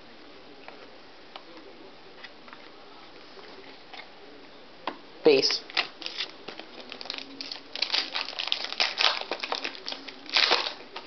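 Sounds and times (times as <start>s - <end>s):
wrapper crinkling: 5.8s - 11.0s.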